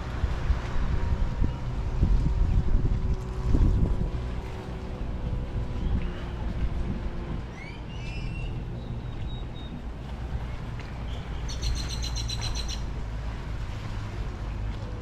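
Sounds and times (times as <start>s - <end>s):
water: 0.0s - 15.0s
wind: 0.0s - 15.0s
birds chirping: 7.5s - 12.9s.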